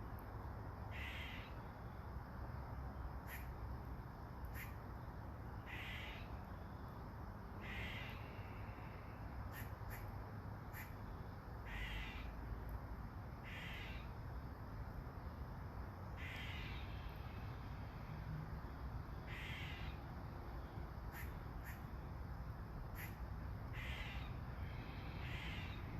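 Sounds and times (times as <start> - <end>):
light rain hiss: 0.0 - 25.9
crow cawing: 0.9 - 1.5, 3.3 - 3.5, 5.7 - 6.3, 7.6 - 8.2, 11.7 - 12.3, 13.4 - 14.1, 16.2 - 16.9, 19.3 - 20.0, 21.1 - 21.8, 23.0 - 24.3, 25.2 - 25.8.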